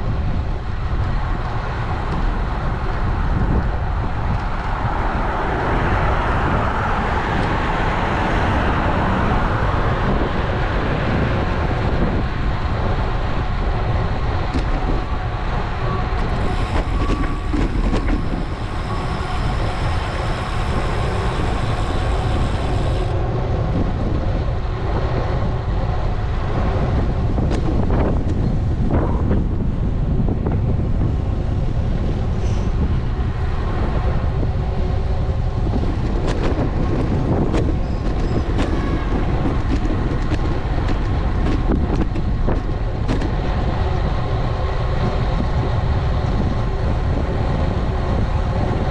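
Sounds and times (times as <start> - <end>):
road and traffic noise: 0.0 - 48.9
wind rushing over microphone: 0.0 - 48.9
faint steady whine: 15.0 - 23.7.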